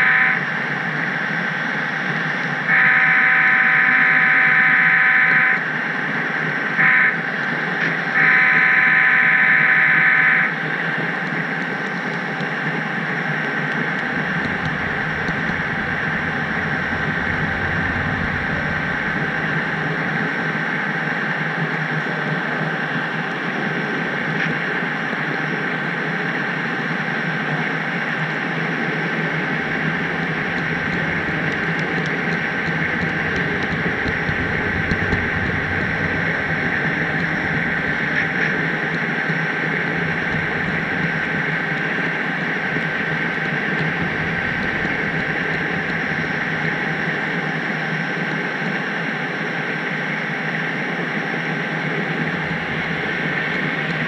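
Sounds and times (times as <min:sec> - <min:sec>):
model train wheels on rails: 0:00.0 - 0:24.7, 0:25.5 - 0:54.0
faint clicks: 0:13.7 - 0:19.2, 0:29.8 - 0:41.4.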